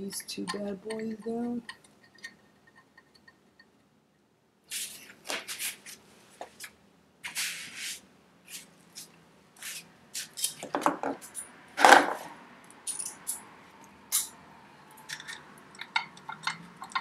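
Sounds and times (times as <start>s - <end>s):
metallic scrapes and clicks: 14.1s - 14.4s, 15.0s - 17.0s.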